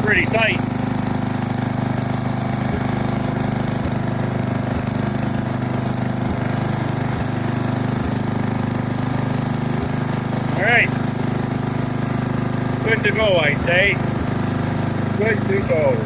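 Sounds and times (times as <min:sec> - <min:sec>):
riding lawn mower engine running: 0:00.0 - 0:16.0.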